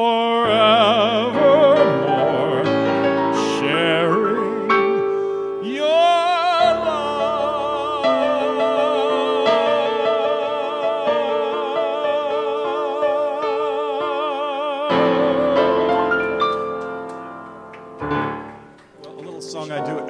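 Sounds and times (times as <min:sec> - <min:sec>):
man singing a long note: 0:00.0 - 0:16.4
piano chords: 0:00.0 - 0:20.0.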